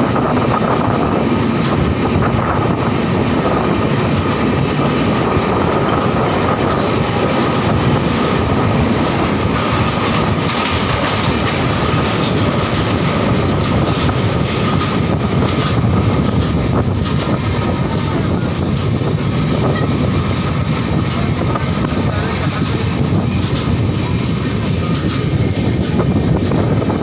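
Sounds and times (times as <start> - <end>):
train wheels clattering on rails: 0.0 - 27.0.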